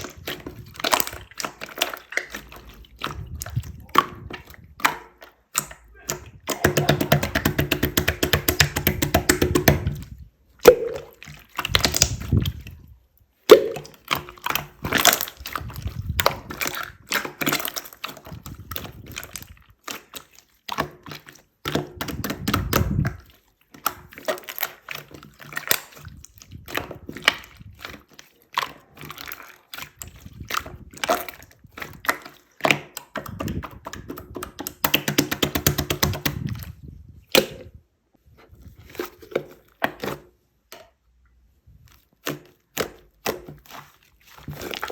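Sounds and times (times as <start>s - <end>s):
slime squelching: 0.0s - 44.9s
slime crackling pops: 10.6s - 12.4s.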